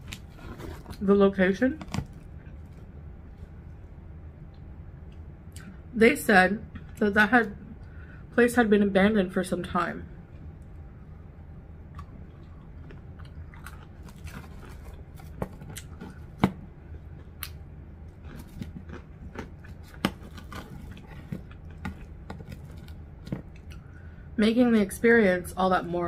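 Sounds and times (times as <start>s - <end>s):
steady low hum: 0.0s - 26.0s
chewing and crunching food: 11.9s - 24.1s.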